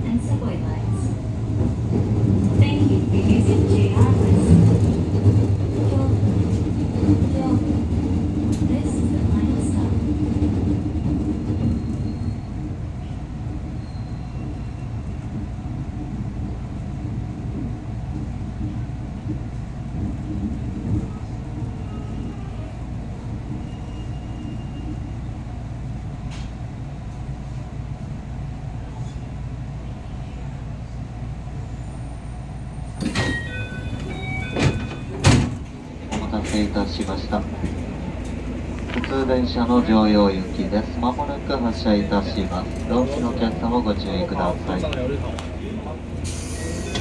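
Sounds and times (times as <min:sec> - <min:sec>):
train rumbling to a stop: 0:00.0 - 0:47.0
sliding doors opening with thump: 0:33.0 - 0:36.6.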